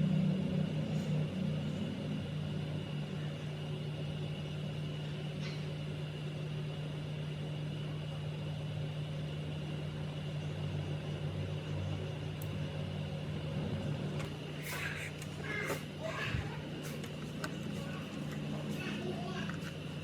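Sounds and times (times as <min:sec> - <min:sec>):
water pump motor humming: 0:08.8 - 0:20.0.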